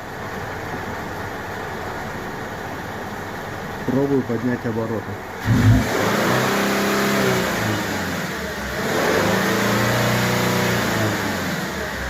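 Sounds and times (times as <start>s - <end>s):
car engine revving: 5.4s - 12.0s.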